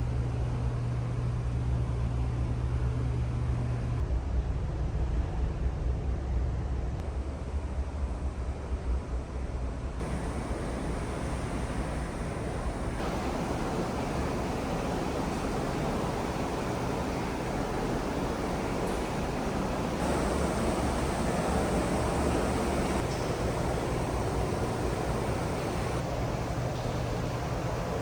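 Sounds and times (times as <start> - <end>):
rushing wind and sea: 10.0 - 26.2
low engine rumble: 10.0 - 28.0.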